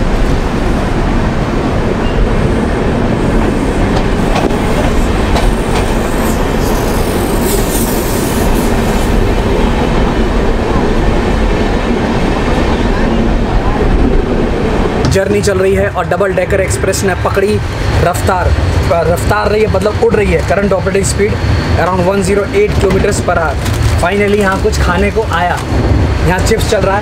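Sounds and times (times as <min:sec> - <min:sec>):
train wheels rumbling on rails: 0:00.0 - 0:27.0
rail joint clicks: 0:03.3 - 0:13.2, 0:17.3 - 0:27.0.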